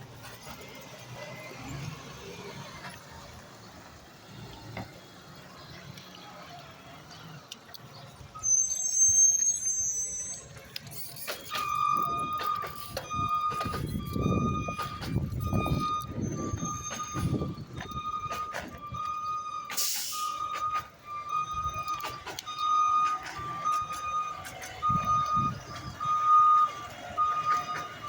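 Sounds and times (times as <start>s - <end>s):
diesel engine revving: 0.0s - 28.0s
high squeal: 8.3s - 26.7s
reversing alarm beeping: 8.3s - 28.0s.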